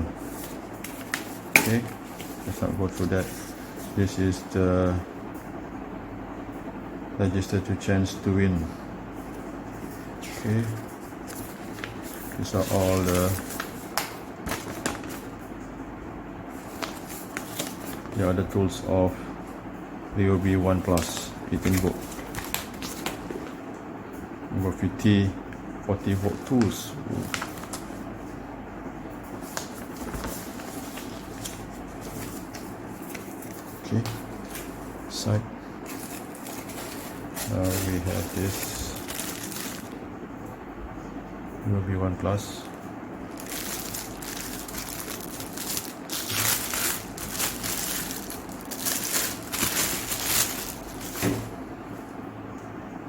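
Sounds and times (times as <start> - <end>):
low room hum: 0.0 - 53.0
paper rustling and clicking: 0.2 - 4.2, 10.2 - 15.4, 16.6 - 18.3, 20.8 - 23.6, 26.1 - 28.0, 29.3 - 34.8, 35.8 - 40.0, 42.6 - 51.5.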